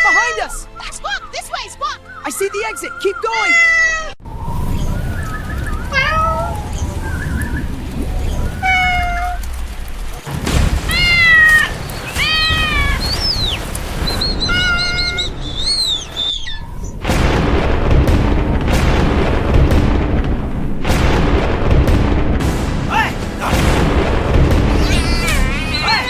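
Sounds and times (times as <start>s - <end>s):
cartoon cat meowing: 3.4s - 4.2s, 5.9s - 6.6s, 8.6s - 9.4s, 24.7s - 26.0s
low rumble: 9.4s - 26.0s
loud noisy surge: 22.4s - 26.0s.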